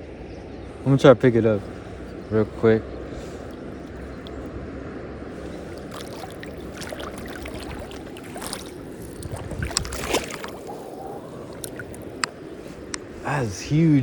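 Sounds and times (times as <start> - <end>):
water splashing in shallows: 1.8 - 4.6, 5.2 - 12.9
river water rushing: 5.2 - 12.6.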